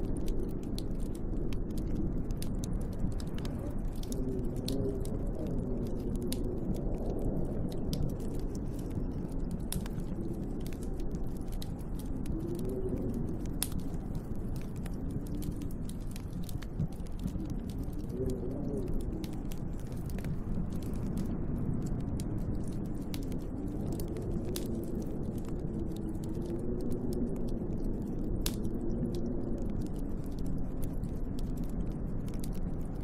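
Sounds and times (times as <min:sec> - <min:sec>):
howling snowstorm wind: 0:00.0 - 0:33.0
wood fire crackling and popping: 0:00.0 - 0:33.0.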